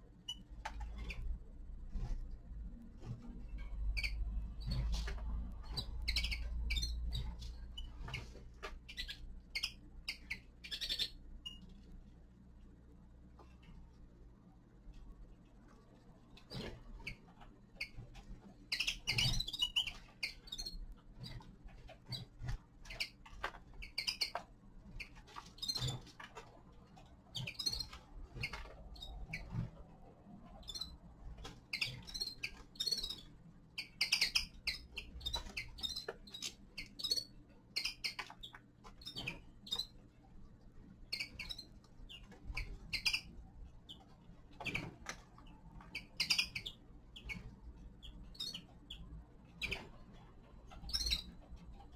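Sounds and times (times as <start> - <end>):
finches chirping: 3.0 - 11.8, 16.4 - 40.2, 41.0 - 51.9
birds tapping in cage: 16.4 - 29.8, 43.9 - 47.5.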